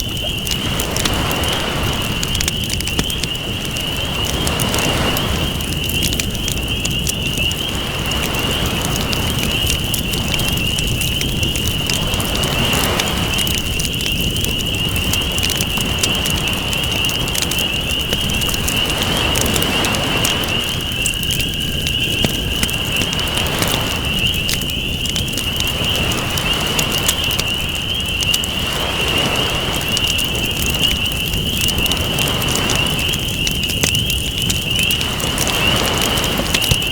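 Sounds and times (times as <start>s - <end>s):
campfire crackling: 0.0s - 36.9s
ocean waves washing: 0.0s - 36.9s.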